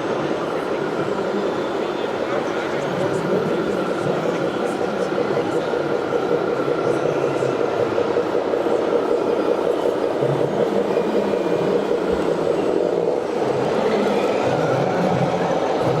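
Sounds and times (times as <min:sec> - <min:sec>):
model trucks humming and whirring: 0:00.0 - 0:16.0.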